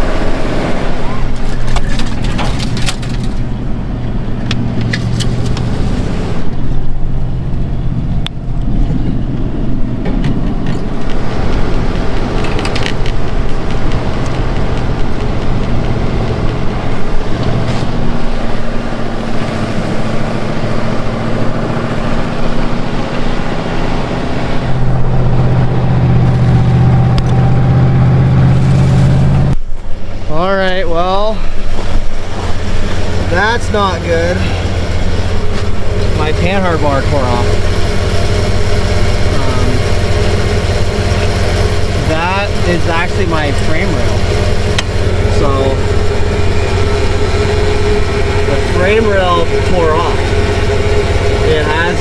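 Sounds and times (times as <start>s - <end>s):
pickup truck engine driving off-road: 0.0s - 52.0s
scattered clicks and knocks: 9.3s - 18.0s.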